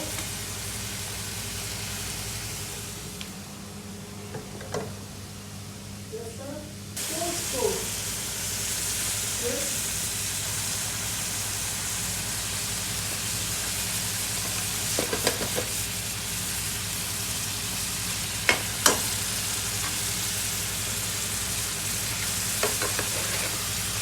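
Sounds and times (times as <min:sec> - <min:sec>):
food sizzling: 0:00.0 - 0:03.7, 0:06.9 - 0:24.0.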